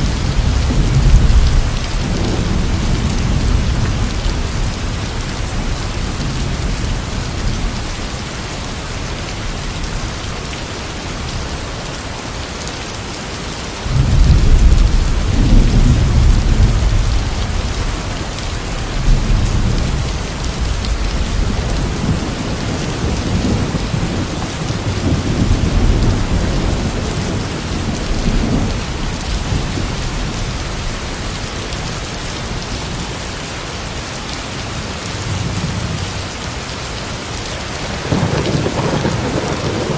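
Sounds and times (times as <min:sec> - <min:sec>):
rolling thunder: 0:00.0 - 0:07.9, 0:13.9 - 0:30.8, 0:37.9 - 0:39.9
heavy rain: 0:00.0 - 0:39.9.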